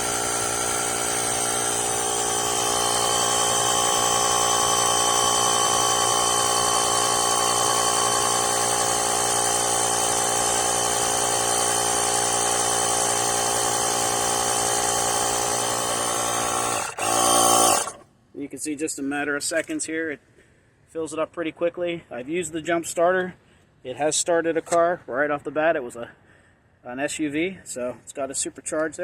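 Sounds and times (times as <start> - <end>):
air compressor whining: 0.0 - 18.0.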